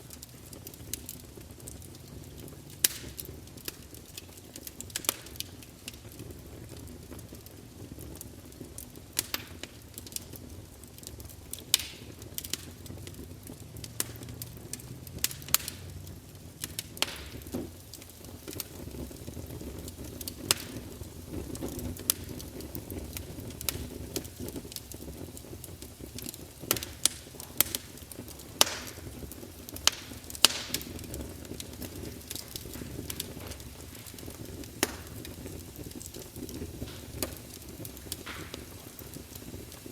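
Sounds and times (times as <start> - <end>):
campfire crackling and popping: 0.0 - 39.9
low rumble of flames: 0.0 - 39.9.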